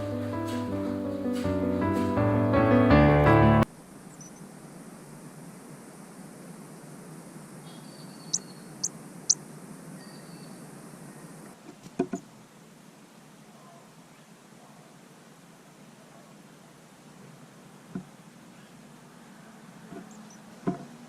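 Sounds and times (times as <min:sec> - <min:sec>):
music: 0:00.0 - 0:03.7
faint outdoor hiss: 0:03.6 - 0:21.0
small bird chirping: 0:04.0 - 0:04.5, 0:07.6 - 0:11.4, 0:20.0 - 0:20.6.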